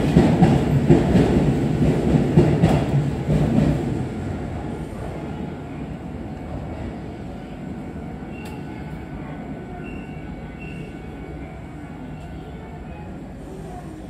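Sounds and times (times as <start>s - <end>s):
train wheels rumbling: 0.0s - 11.2s.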